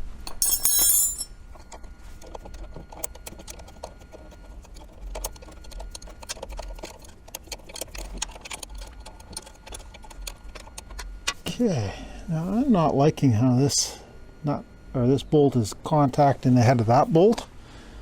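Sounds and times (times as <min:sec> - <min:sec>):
sharp metallic clink: 0:00.3 - 0:01.3.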